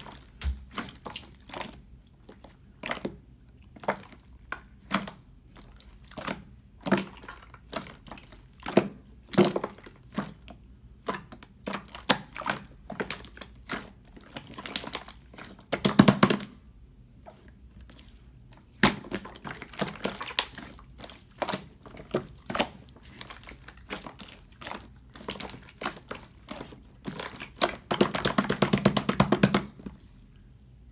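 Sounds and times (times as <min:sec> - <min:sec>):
slime crackling: 0:17.2 - 0:30.1.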